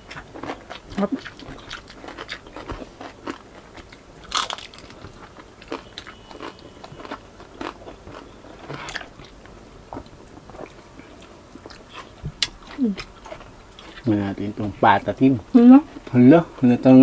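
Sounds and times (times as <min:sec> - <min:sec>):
crunching fried pork skin: 0:00.0 - 0:09.1
chewing: 0:00.0 - 0:14.1.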